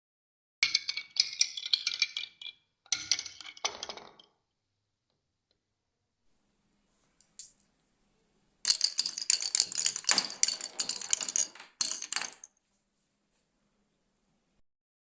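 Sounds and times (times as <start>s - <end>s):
balls clattering down wooden marble run: 0.6s - 4.3s, 8.7s - 12.5s.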